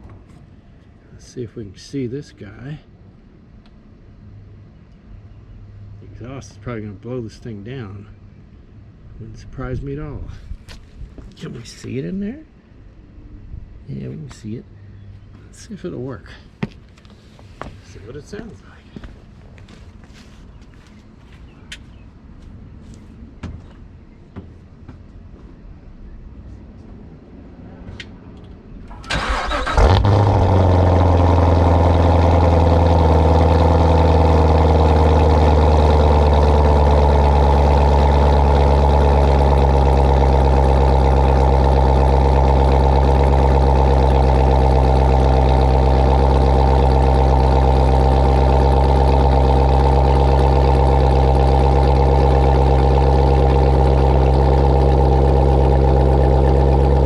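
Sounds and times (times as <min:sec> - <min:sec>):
car engine fast idle: 0:28.9 - 0:57.0.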